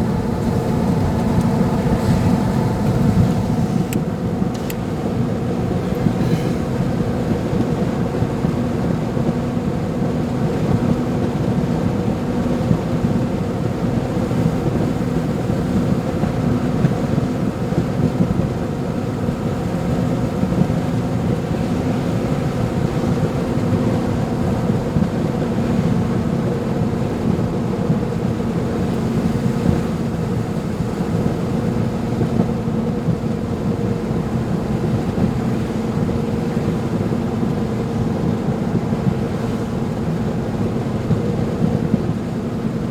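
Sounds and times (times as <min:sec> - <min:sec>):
road noise: 0:00.0 - 0:07.4
engine drone: 0:00.0 - 0:08.2.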